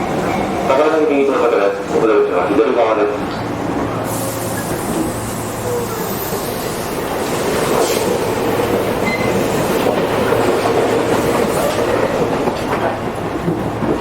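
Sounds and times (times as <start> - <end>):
train rolling noise: 0.0 - 14.0.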